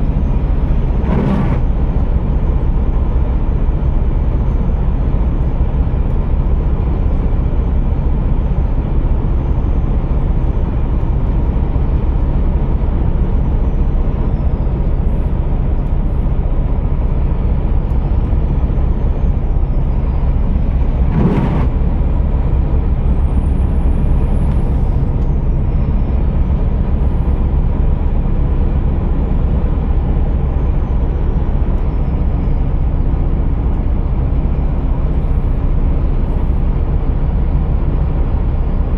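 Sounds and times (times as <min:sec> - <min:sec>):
truck diesel engine running: 0:00.0 - 0:38.9
loud burst: 0:21.0 - 0:21.7.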